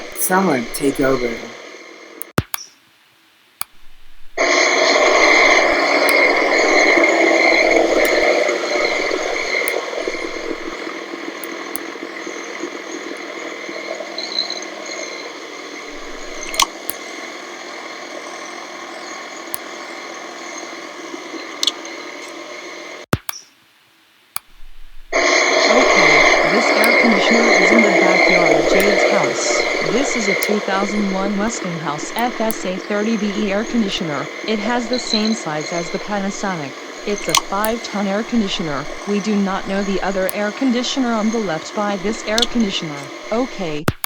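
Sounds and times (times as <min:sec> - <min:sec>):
sharp clicks: 0:02.2 - 0:02.8, 0:03.6 - 0:10.8, 0:15.9 - 0:17.0, 0:23.1 - 0:23.5, 0:24.3 - 0:44.0.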